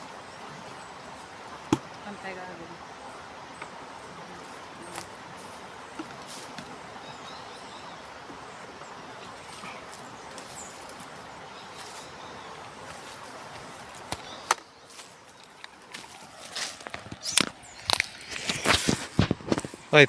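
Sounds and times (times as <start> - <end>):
river background noise: 0.0 - 20.0
faint bird chirps: 2.0 - 15.5.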